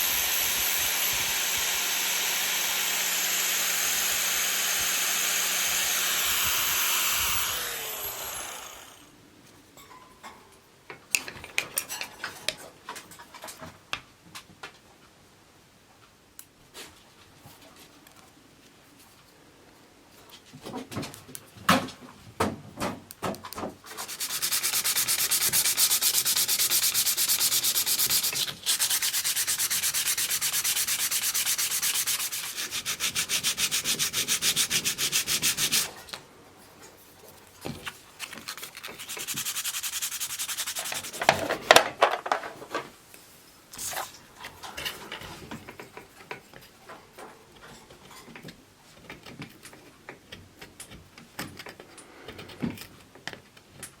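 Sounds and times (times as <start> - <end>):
wood being sanded: 0.0 - 9.1, 24.0 - 36.0, 38.8 - 41.4.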